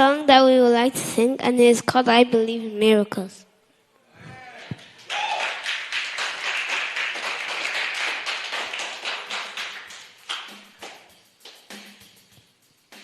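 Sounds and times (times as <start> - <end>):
group of people clapping: 4.4 - 12.1.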